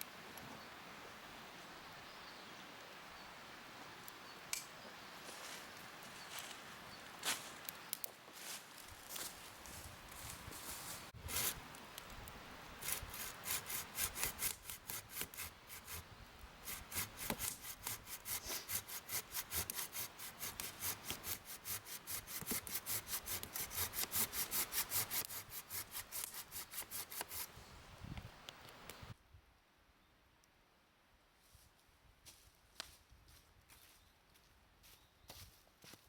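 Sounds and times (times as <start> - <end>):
hand saw cutting wood: 11.2 - 11.6, 12.8 - 16.0, 16.6 - 27.5.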